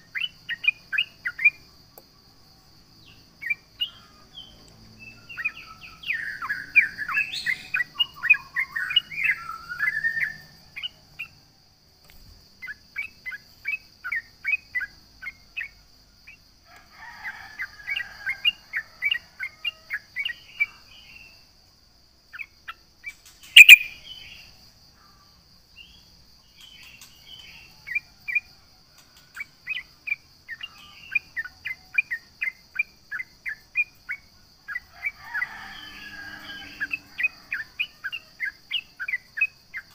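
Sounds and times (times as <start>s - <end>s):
bird singing warbled phrases: 0.0s - 1.7s, 3.0s - 11.4s, 22.4s - 24.6s, 29.6s - 34.9s
sharp loud click: 23.6s - 23.9s
faint steady high tone: 23.6s - 24.2s.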